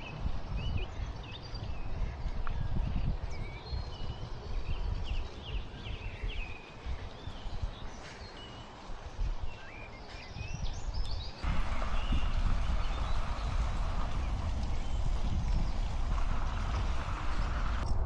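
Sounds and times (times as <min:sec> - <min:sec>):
small birds singing: 0:00.0 - 0:18.0
steady rushing noise: 0:04.5 - 0:18.0
low uneven rumble: 0:11.4 - 0:18.0.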